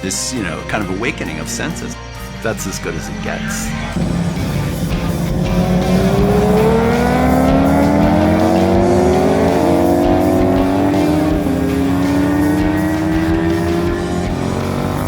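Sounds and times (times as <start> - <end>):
motorcycle engine accelerating: 3.4 - 15.0.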